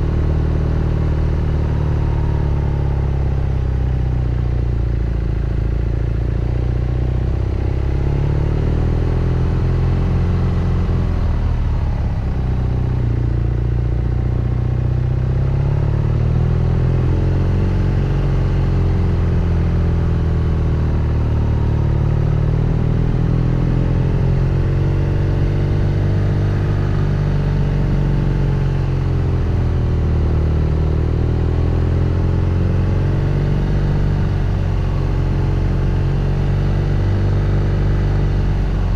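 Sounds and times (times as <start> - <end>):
motorcycle engine revving: 15.3 - 38.9.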